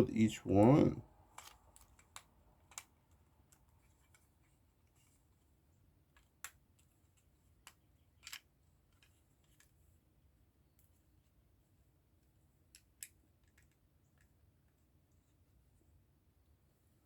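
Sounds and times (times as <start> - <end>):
plastic parts clicking: 1.3 - 4.2, 7.6 - 9.7.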